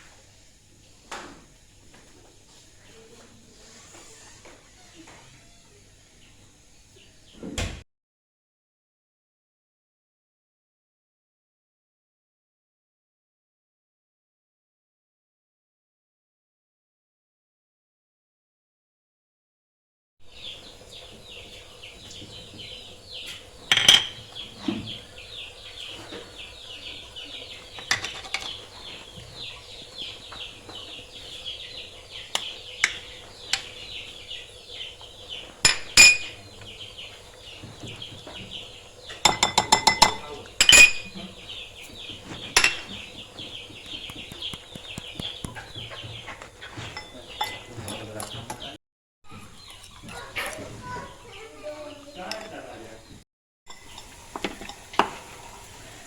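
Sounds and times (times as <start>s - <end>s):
high chirping: 20.2s - 52.4s
kitchen utensils clinking on dishes: 20.3s - 51.0s, 52.3s - 52.6s, 53.7s - 56.0s.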